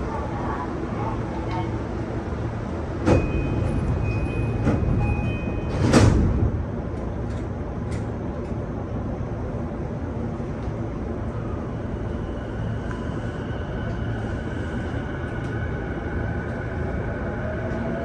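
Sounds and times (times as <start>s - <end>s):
low hum of train equipment: 0.0s - 18.0s
train doors knocking shut: 3.0s - 6.6s.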